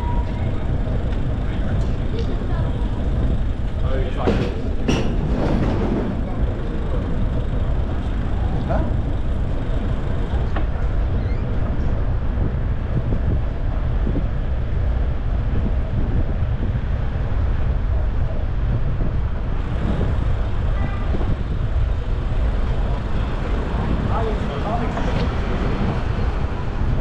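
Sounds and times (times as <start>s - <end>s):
street traffic rumble: 0.0s - 27.0s.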